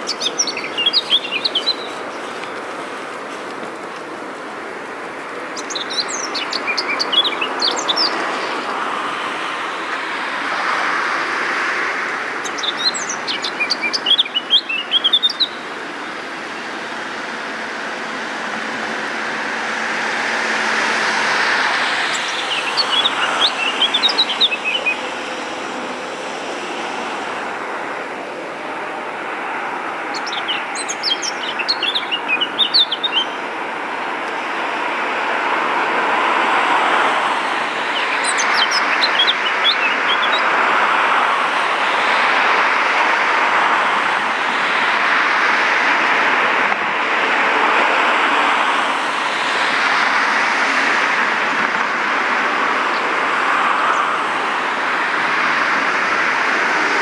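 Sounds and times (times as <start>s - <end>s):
songbird twittering: 0.0s - 2.7s, 5.5s - 8.6s, 12.4s - 15.7s, 21.2s - 25.9s, 30.0s - 33.4s, 37.8s - 40.6s.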